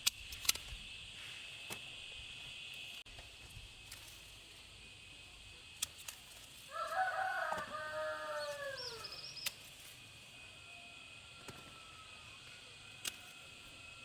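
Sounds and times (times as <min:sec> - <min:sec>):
rooster crowing: 0:06.7 - 0:09.3, 0:10.5 - 0:12.8.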